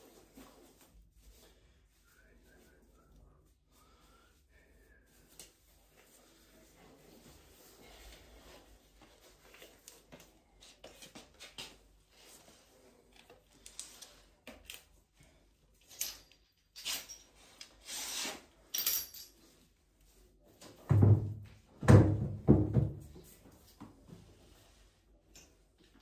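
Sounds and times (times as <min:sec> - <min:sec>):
metal parts clicking and rubbing: 0:15.8 - 0:17.8.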